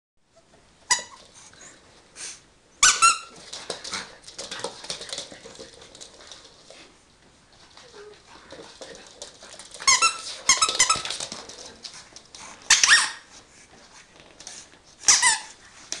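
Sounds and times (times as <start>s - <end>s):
squeaky toy ball squeaking: 0.9s - 1.2s, 2.8s - 3.3s, 15.1s - 15.5s.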